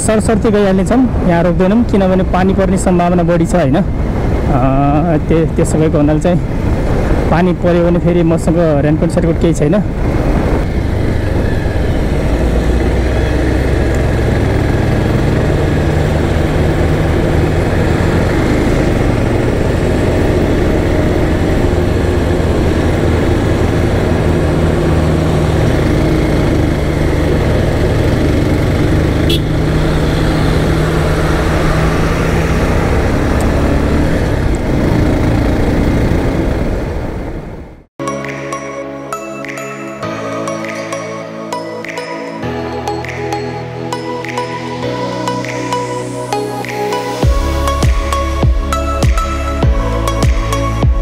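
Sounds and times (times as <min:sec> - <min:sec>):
wind and road noise: 0:00.0 - 0:51.0
motorcycle engine running: 0:10.3 - 0:37.2.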